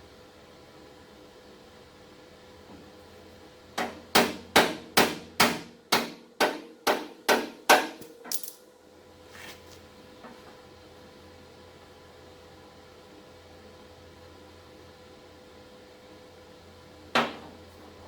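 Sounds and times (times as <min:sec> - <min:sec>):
hammer striking steel panel: 0:03.8 - 0:08.1.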